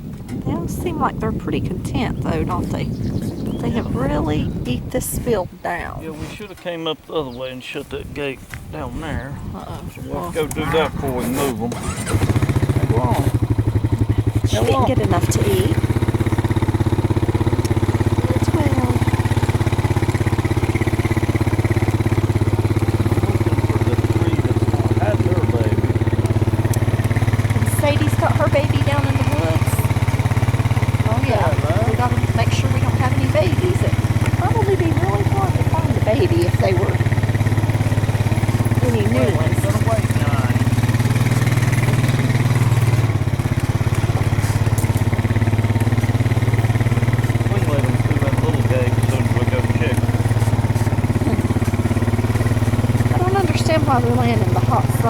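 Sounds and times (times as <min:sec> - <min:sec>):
small engine idling: 0:00.0 - 0:09.3, 0:10.0 - 0:55.0.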